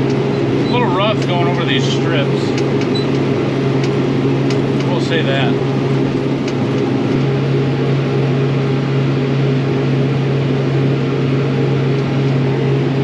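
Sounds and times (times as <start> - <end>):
sprayer engine cab drone: 0.0 - 13.0.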